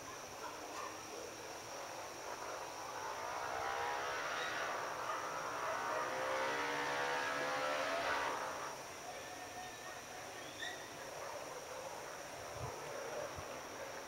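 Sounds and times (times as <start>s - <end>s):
airplane passing overhead: 1.7s - 8.8s.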